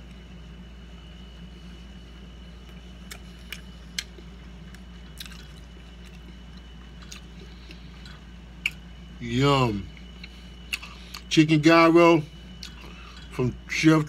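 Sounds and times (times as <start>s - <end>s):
steady low hum: 0.0s - 14.0s
person chewing food: 2.6s - 8.8s, 9.9s - 11.3s, 12.6s - 13.3s.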